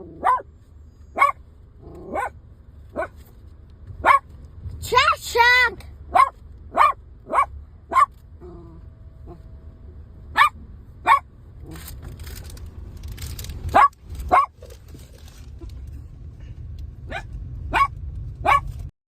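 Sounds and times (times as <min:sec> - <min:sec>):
dog barking: 0:00.2 - 0:00.5, 0:01.2 - 0:01.4, 0:02.0 - 0:02.4, 0:03.0 - 0:03.2, 0:04.0 - 0:04.2, 0:06.1 - 0:08.1, 0:10.4 - 0:11.3, 0:13.7 - 0:14.6, 0:17.1 - 0:18.7
low rumble: 0:05.8 - 0:18.9.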